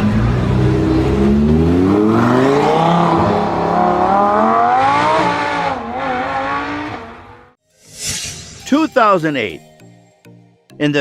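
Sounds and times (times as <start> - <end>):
car engine accelerating: 0.0 - 7.6.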